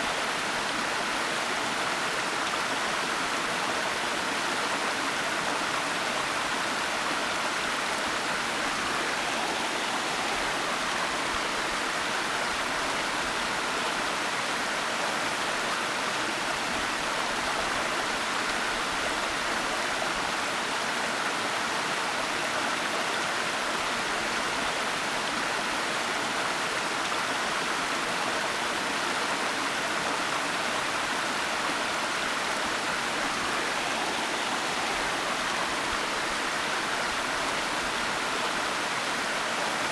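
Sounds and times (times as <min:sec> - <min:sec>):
waterfall rushing: 0:08.4 - 0:12.0, 0:30.3 - 0:39.9.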